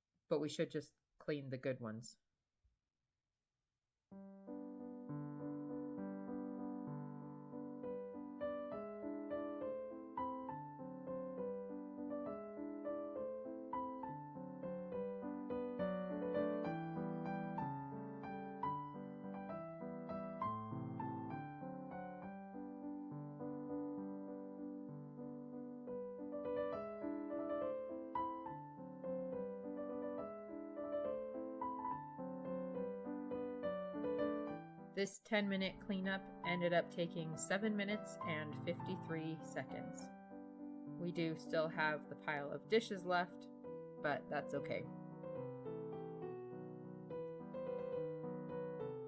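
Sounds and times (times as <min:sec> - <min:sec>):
gentle piano music: 0:04.2 - 0:49.0.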